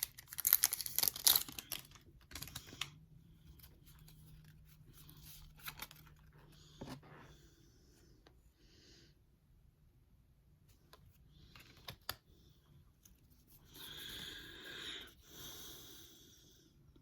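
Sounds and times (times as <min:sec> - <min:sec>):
cards rustling and sliding: 0:00.0 - 0:07.4, 0:10.8 - 0:12.3.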